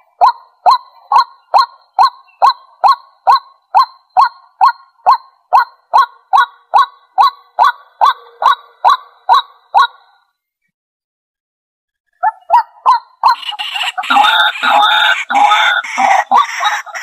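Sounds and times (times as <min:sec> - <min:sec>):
waterhen kwak calls: 0:12.2 - 0:17.0.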